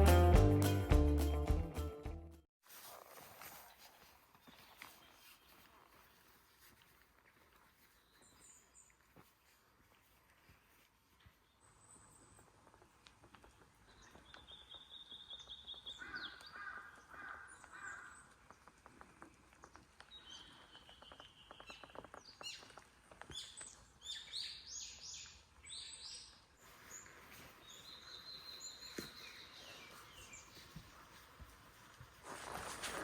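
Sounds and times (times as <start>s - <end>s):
birds trilling and chirping: 13.8s - 18.6s.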